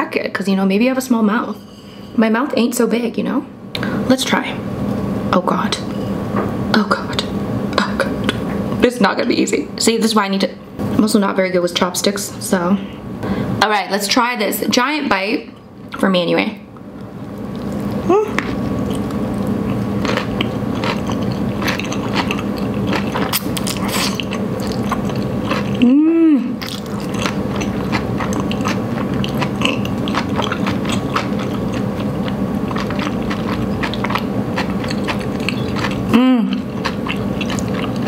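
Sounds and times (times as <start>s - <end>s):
closed-mouth hum: 14.6s - 38.0s
person chewing noodles: 17.3s - 26.0s, 26.6s - 38.0s.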